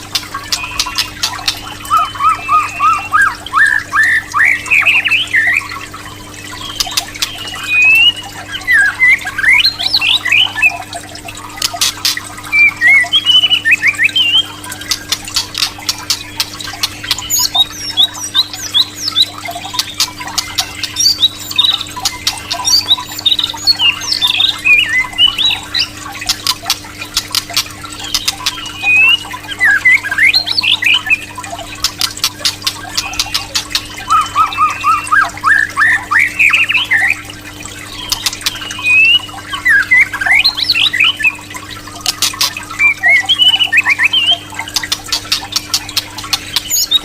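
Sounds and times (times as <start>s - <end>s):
sharp clicking bird notes: 0.0s - 10.8s, 11.5s - 37.2s, 37.9s - 41.3s, 42.0s - 47.0s
bird singing varied whistles: 0.5s - 5.7s, 6.4s - 10.8s, 28.1s - 31.3s, 33.0s - 37.2s, 38.7s - 41.4s, 42.8s - 44.4s.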